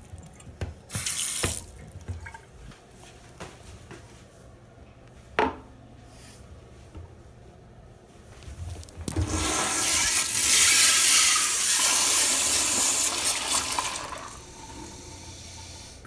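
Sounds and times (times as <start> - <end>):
water running in hissing spurt: 0.9 - 1.7, 9.2 - 16.0.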